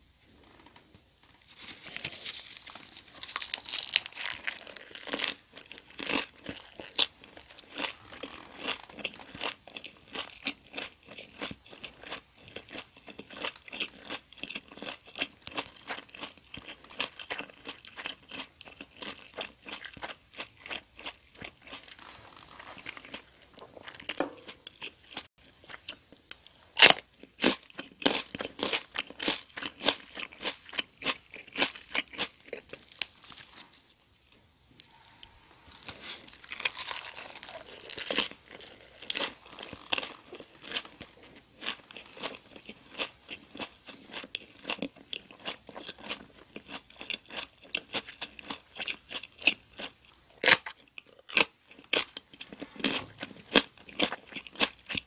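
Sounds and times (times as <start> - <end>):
wet chewing and crunching: 1.5 - 33.7, 34.8 - 55.0.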